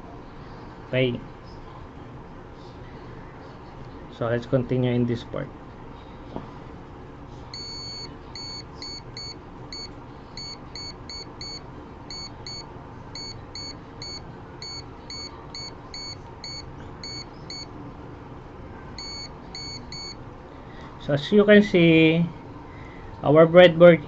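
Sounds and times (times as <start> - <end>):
multimeter buzzer beeps: 7.5 - 17.7, 19.0 - 20.2.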